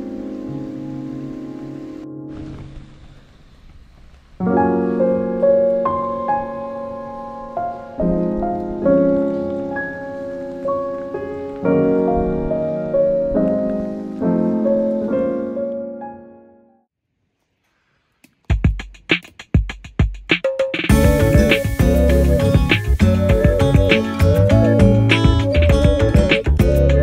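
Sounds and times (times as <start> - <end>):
piano music: 0.0 - 3.0, 4.4 - 16.9, 20.9 - 27.0.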